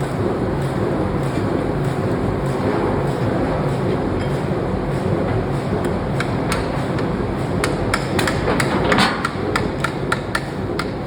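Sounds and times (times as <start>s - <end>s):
low machinery hum: 0.0s - 11.0s
hammer striking metal: 6.2s - 11.0s.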